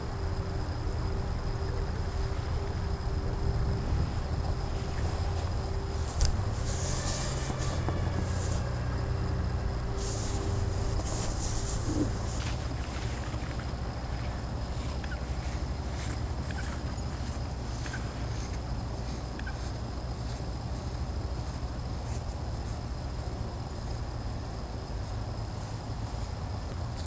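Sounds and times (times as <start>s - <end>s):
low bird calls: 0.0s - 18.1s
steady low rumble: 0.0s - 25.6s.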